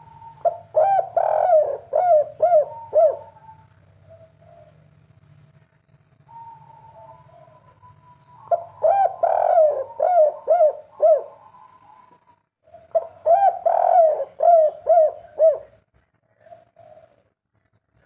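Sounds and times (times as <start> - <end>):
dove cooing: 0.0 - 5.0, 6.3 - 17.8.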